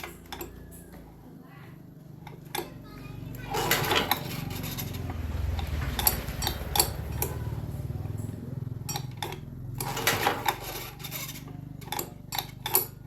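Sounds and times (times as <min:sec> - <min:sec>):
low mechanical hum: 0:00.0 - 0:13.0
rough scraping: 0:03.3 - 0:08.0.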